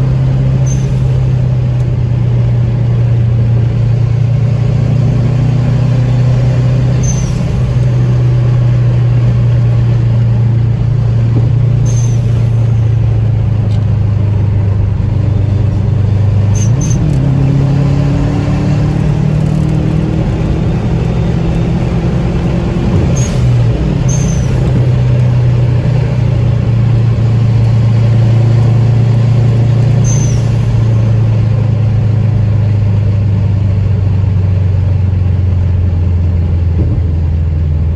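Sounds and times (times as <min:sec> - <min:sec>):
car engines droning: 0:00.0 - 0:37.9
short high chirps: 0:11.8 - 0:13.0, 0:30.0 - 0:31.0.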